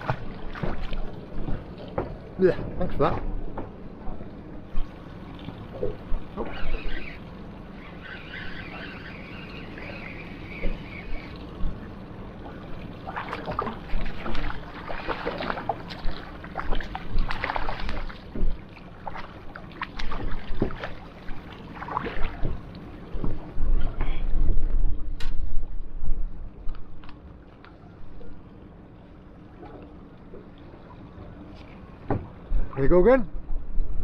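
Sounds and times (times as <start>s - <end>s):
water splashing against boat hull: 0.0s - 25.6s.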